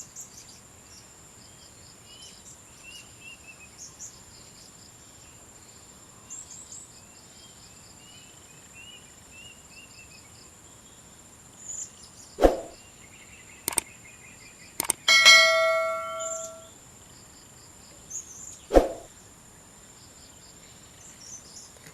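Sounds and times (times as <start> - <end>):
small bird chirps: 11.7 - 14.0
sharp knocks: 14.8 - 16.7
ringing metallic clang: 15.1 - 16.7.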